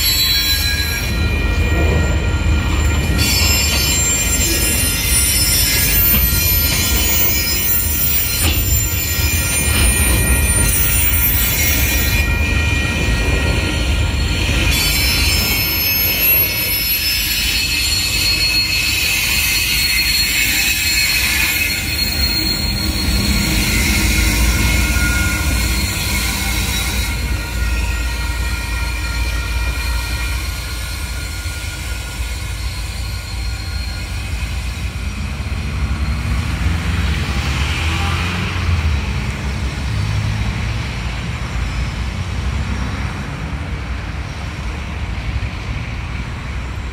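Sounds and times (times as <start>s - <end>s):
diesel locomotive hum: 0.0s - 46.9s
train wheel squeal: 0.0s - 46.9s
wagons rumbling on track: 0.0s - 46.9s.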